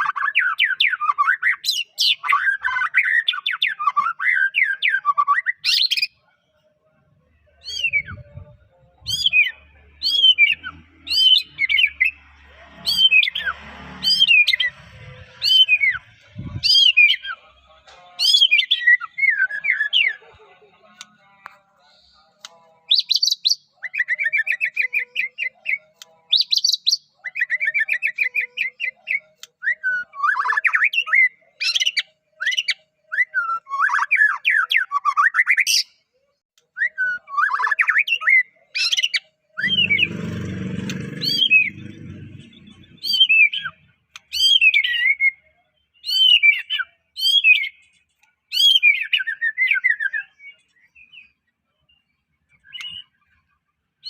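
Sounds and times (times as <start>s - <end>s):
low muffled noise: 6.5s - 9.9s, 14.6s - 18.2s
bird singing: 7.4s - 21.6s, 22.9s - 36.0s, 36.8s - 53.7s.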